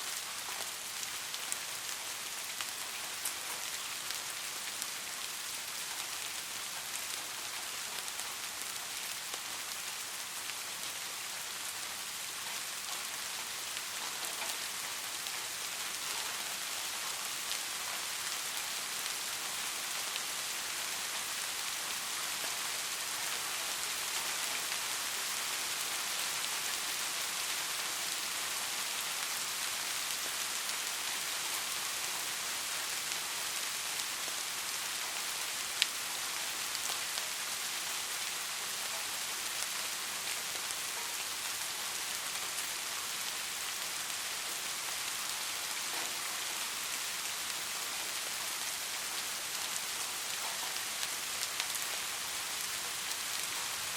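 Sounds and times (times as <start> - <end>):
rain hissing on a street: 0.0 - 53.9.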